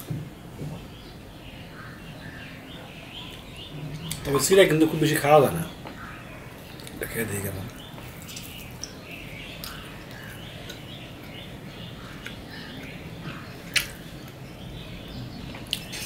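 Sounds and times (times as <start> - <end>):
small birds chirping: 0.0 - 16.0
person chewing food: 7.8 - 11.4.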